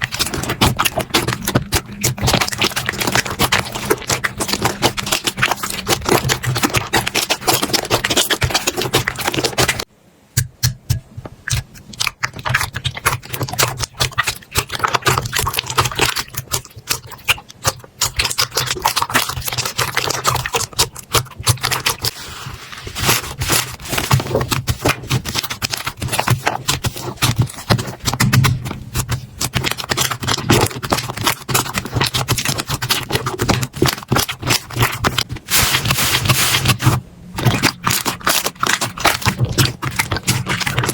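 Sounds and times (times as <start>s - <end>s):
slime clicking and popping: 26.5s - 35.2s.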